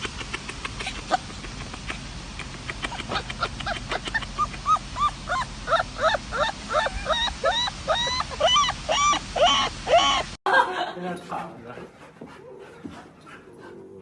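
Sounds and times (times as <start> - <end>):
puppy yelping: 2.9 - 10.3.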